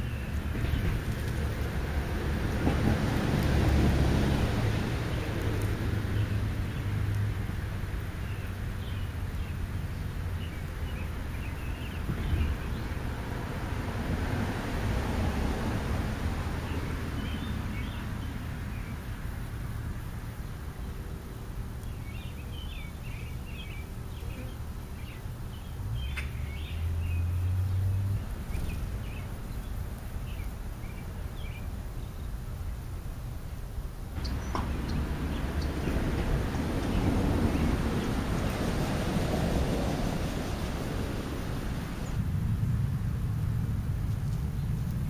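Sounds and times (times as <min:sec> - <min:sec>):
low outdoor rumble: 0:00.0 - 0:45.0
small birds chirping: 0:05.0 - 0:13.2, 0:16.7 - 0:19.6, 0:21.7 - 0:33.0, 0:34.1 - 0:42.2.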